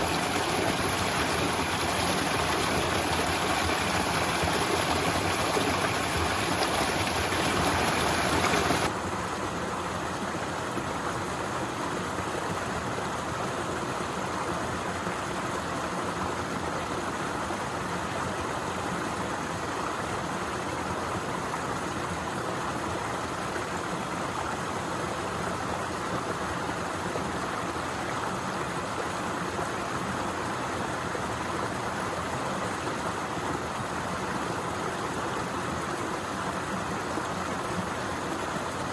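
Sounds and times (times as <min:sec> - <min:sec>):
waterfall rushing: 0:00.0 - 0:08.9.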